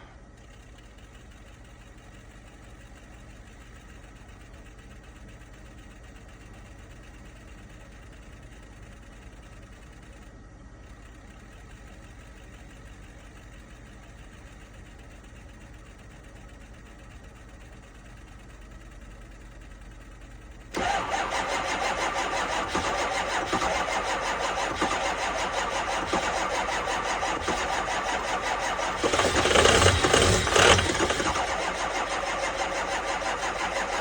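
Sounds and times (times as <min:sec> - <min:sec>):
starter cranking diesel engine: 0:19.0 - 0:34.0.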